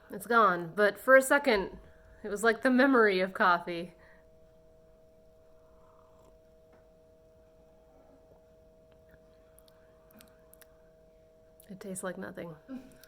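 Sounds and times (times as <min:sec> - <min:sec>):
faint two-note hum: 0:03.4 - 0:13.0.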